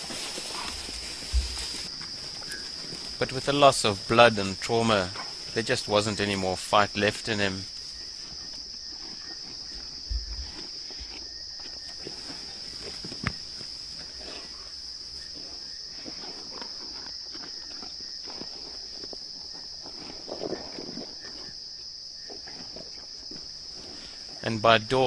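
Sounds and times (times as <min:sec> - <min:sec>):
hyenas feeding crackles and knocks: 0:00.0 - 0:05.6, 0:07.7 - 0:24.4
crickets chirping: 0:00.0 - 0:25.0.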